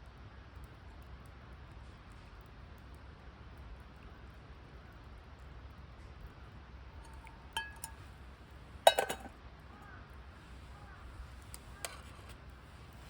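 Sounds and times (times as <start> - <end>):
camp cookware clinking: 7.0 - 8.2, 8.8 - 9.4.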